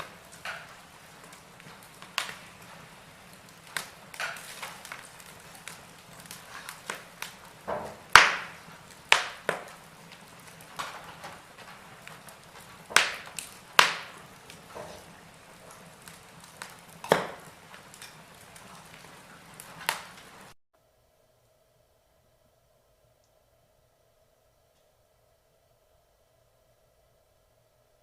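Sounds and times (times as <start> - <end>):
wood fire crackling: 0.0 - 20.6.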